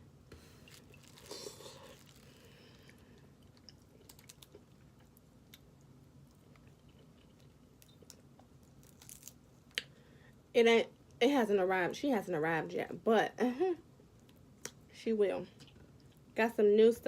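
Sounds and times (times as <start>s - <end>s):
person chewing food: 0.4s - 10.0s.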